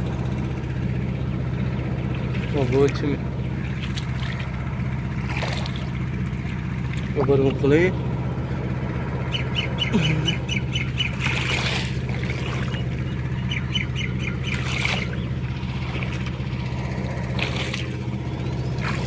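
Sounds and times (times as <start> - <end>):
tractor engine running: 0.0 - 19.0
bird squawking: 9.3 - 15.4.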